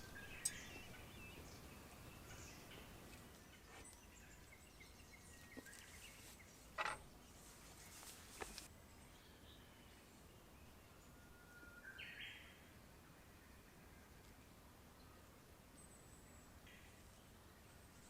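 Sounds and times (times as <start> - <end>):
small birds chirping: 0.0 - 11.1.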